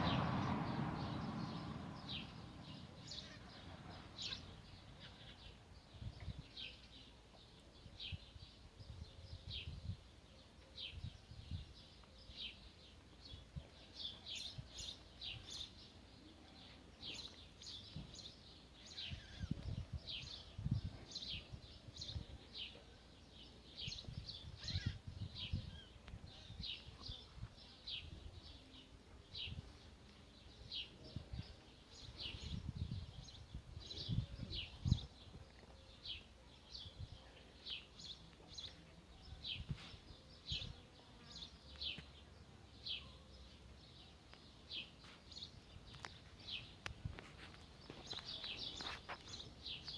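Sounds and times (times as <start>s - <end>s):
low rumbles: 0.0s - 4.0s
small birds chirping: 0.0s - 49.9s.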